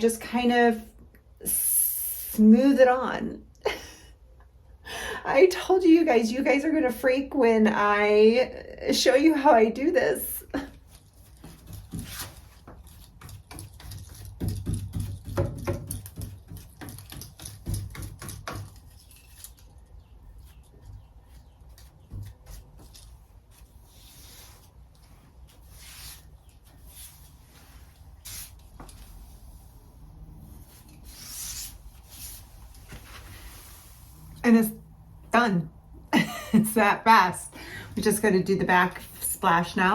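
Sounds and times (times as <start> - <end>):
paintbrush strokes on wood: 23.4 - 34.4.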